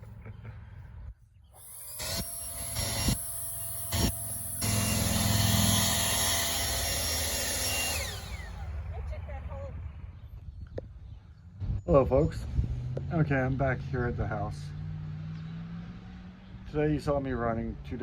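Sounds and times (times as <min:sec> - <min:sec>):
power tool whine: 0:01.6 - 0:08.7.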